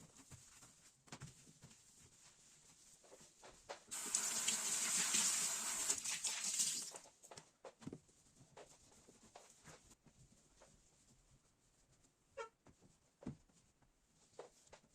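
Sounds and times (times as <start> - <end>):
kitchen tap running: 3.9 - 7.0.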